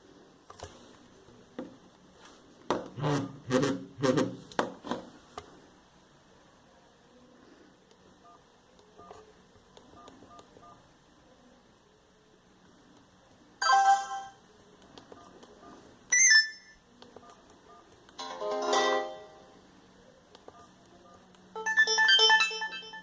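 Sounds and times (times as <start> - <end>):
mobile phone beeps: 15.1 - 17.9, 20.5 - 23.0
ringtone melody bursts: 21.6 - 23.0.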